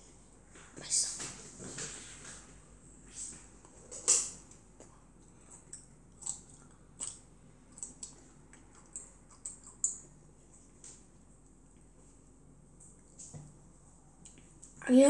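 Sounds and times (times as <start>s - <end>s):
child chewing juicy fruit: 3.4s - 12.2s.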